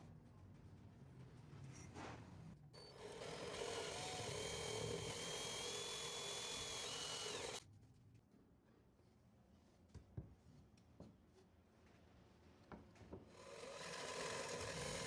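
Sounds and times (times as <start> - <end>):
power tool high whine: 2.8 - 7.6, 13.5 - 15.0.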